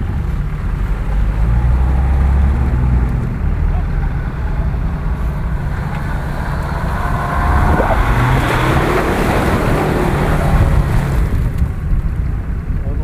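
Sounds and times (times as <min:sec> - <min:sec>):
car engine revving: 0:00.3 - 0:12.1
spinning tyres throwing mud: 0:04.0 - 0:12.6.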